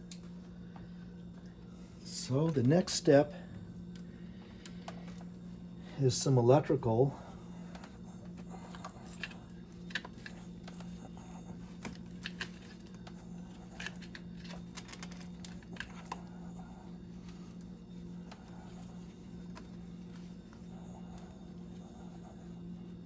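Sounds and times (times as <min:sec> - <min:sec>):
steady low hum: 0:00.0 - 0:23.0
small parts clicking and tapping: 0:08.6 - 0:11.1, 0:11.7 - 0:16.3.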